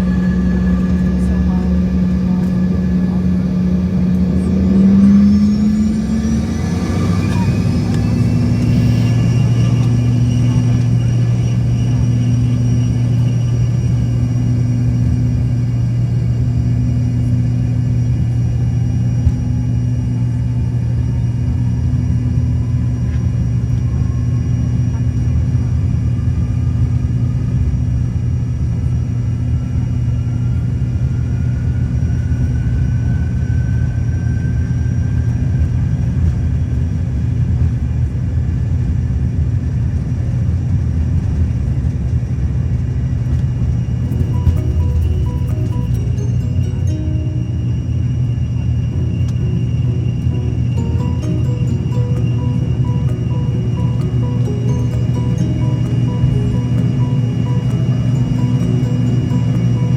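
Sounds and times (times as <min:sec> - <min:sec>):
faint rising whine: 0:00.0 - 0:59.9
jet engine drone in cabin: 0:00.0 - 0:59.9.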